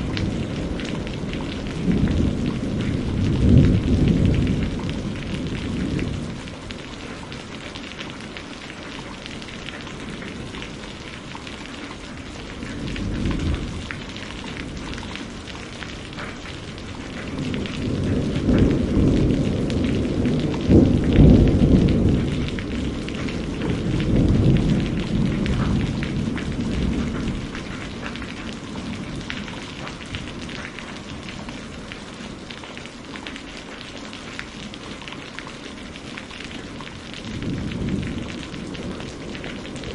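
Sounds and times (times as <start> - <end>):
rolling thunder: 0.0 - 6.9, 12.4 - 32.4, 37.0 - 39.9
steady rain falling: 0.0 - 39.9.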